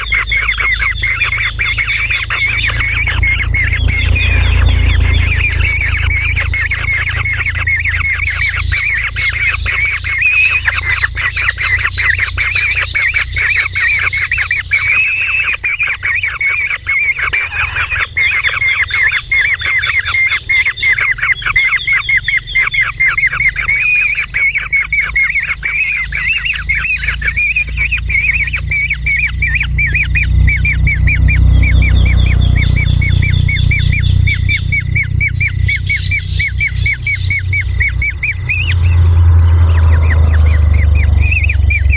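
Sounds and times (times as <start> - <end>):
low rumble: 0.0 - 11.2, 27.7 - 41.9
high-pitched buzz: 0.0 - 20.1, 25.4 - 41.9
bird chirping rapidly: 0.0 - 41.9.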